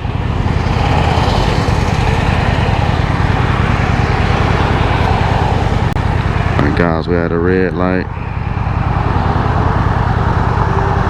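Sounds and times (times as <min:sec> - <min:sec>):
wind noise on microphone: 0:00.0 - 0:07.0
motorcycle engine running: 0:00.0 - 0:11.0.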